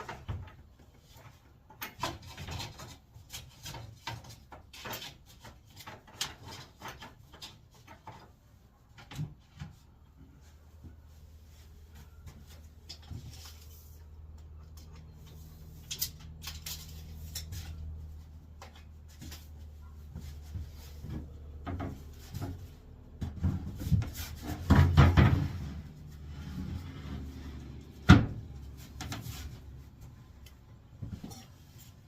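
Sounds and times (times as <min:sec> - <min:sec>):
knocks and clatter: 0:18.6 - 0:29.5.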